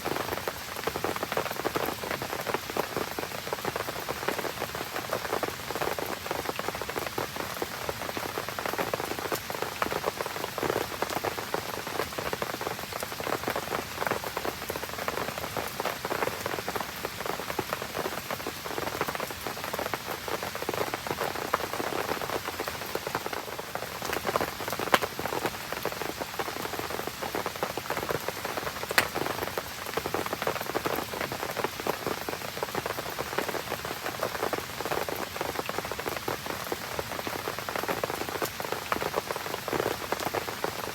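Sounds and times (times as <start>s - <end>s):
rain pattering: 0.0s - 40.9s
campfire crackling with pops: 28.9s - 29.5s.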